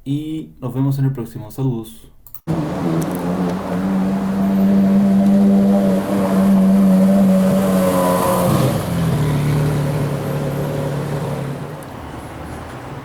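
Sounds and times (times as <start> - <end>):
sports car engine revving: 2.5 - 12.2.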